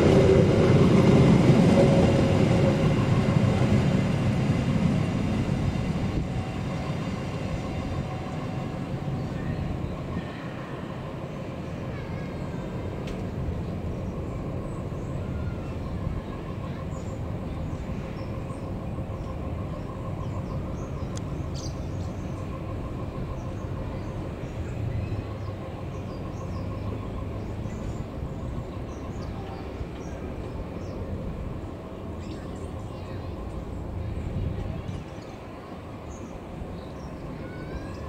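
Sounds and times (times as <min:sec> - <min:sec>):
train rumbling on rails: 0:00.0 - 0:38.0.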